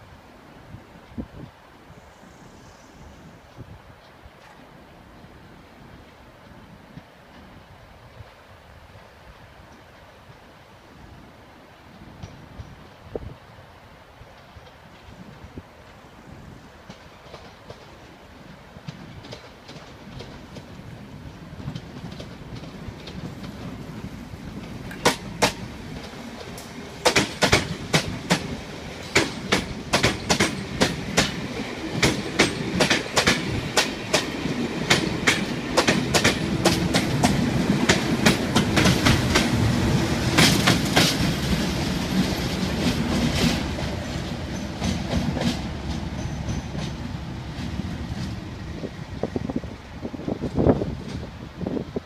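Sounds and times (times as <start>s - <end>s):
train wheels clicking over track joints: 12.0s - 13.0s, 16.7s - 51.5s.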